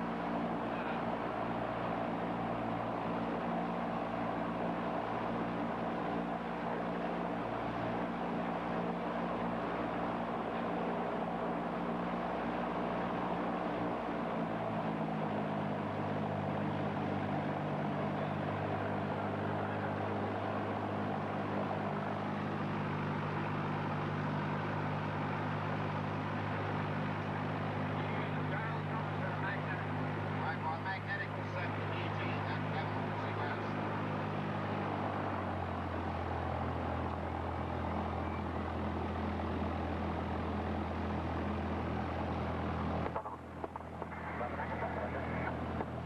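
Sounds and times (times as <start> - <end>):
propeller plane engine drone: 0.0 - 46.0.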